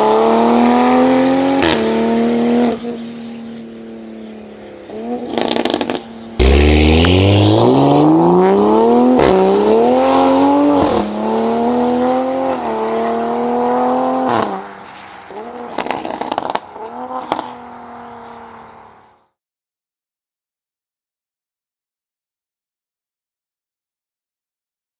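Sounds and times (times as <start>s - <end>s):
sports car engine revving: 0.0s - 18.9s
exhaust pops and crackles: 5.3s - 6.1s, 15.8s - 17.5s.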